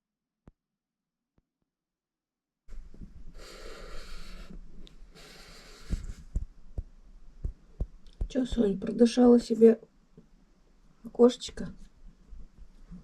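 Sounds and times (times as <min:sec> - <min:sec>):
animal breathing and snorting: 0:03.3 - 0:06.4.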